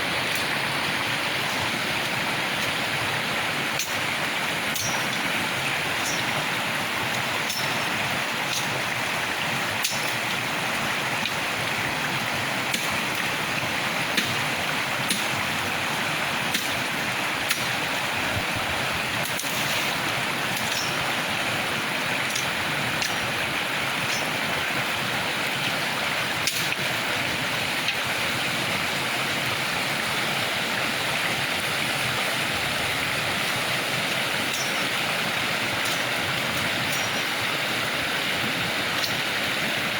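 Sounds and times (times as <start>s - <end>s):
river water running: 0.0s - 39.9s.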